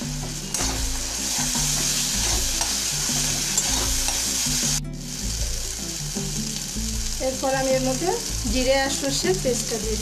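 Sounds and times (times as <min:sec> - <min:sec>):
masala sizzling in oil: 0:00.0 - 0:10.0
metal spatula scraping and stirring: 0:00.5 - 0:04.4.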